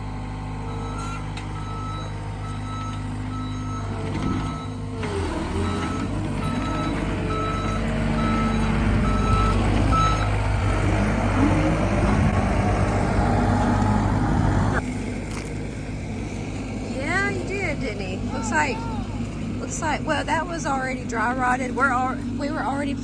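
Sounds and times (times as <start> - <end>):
heavy machine engine running: 0.0 - 23.0
reversing alarm beeping: 0.6 - 10.7.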